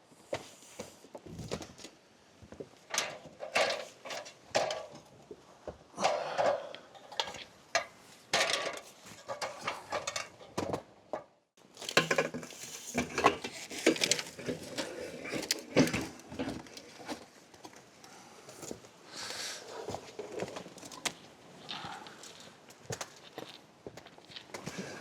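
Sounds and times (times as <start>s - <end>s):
knocking clattering and scraping: 2.9s - 5.2s, 6.4s - 17.8s.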